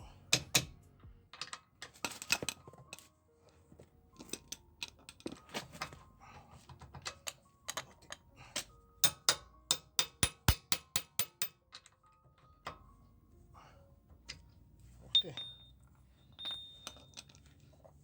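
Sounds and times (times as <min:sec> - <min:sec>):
wrench tapping and clinking metal: 0:00.3 - 0:03.1, 0:04.2 - 0:06.0, 0:06.7 - 0:12.9, 0:15.1 - 0:17.6.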